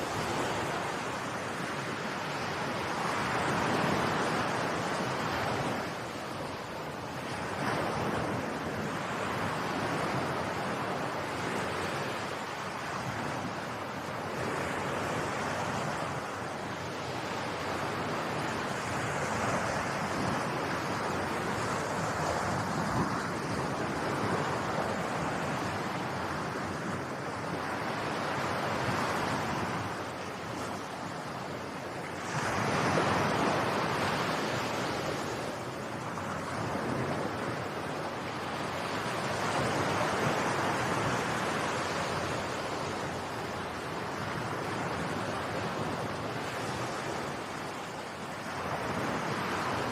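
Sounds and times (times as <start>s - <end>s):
waves rushing: 0.0s - 49.9s.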